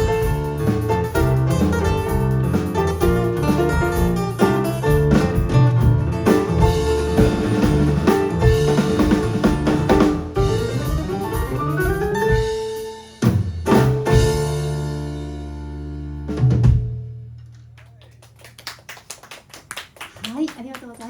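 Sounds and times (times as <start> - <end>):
accented band hits: 0.0 - 15.6
live band playing: 0.0 - 17.1.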